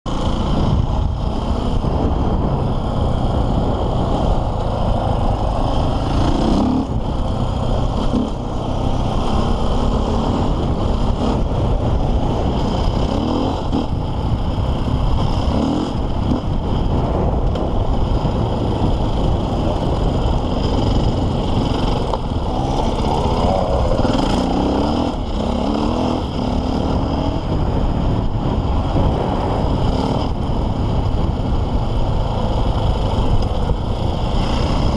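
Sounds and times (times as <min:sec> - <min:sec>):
motorbike engine revving: 0:00.1 - 0:34.9.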